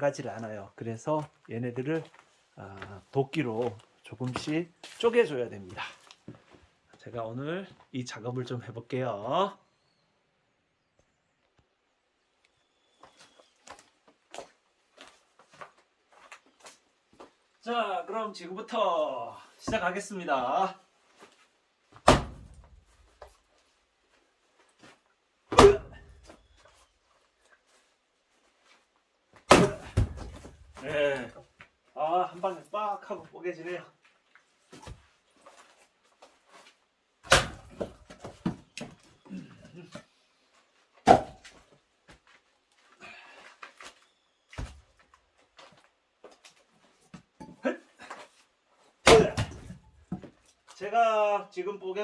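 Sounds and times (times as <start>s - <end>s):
axe chopping firewood: 22.0s - 22.7s, 25.5s - 26.4s, 29.5s - 31.2s, 37.3s - 38.6s, 41.0s - 41.5s, 49.0s - 50.3s.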